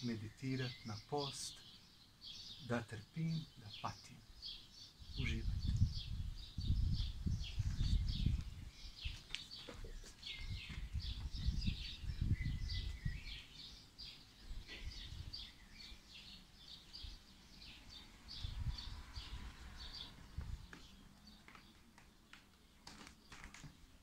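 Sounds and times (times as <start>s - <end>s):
small birds chirping: 0.0s - 24.0s
gusty low rumbling: 5.0s - 9.1s, 10.4s - 13.4s, 18.2s - 21.0s.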